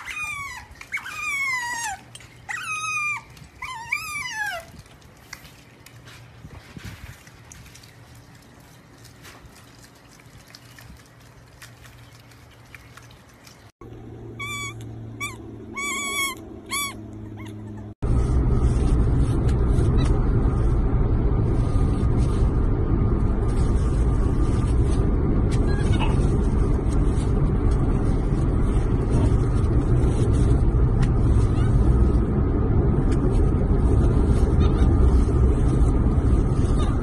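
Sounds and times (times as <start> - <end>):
car road noise rumble: 13.7 - 37.0
squeaky animal calls: 14.4 - 17.9.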